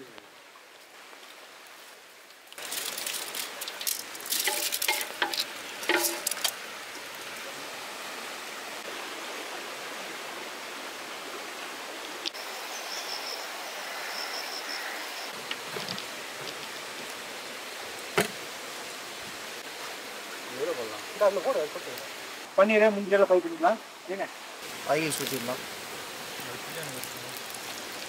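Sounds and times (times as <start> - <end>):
rain hissing: 0.0 - 28.0
clattering knocks: 4.5 - 6.5.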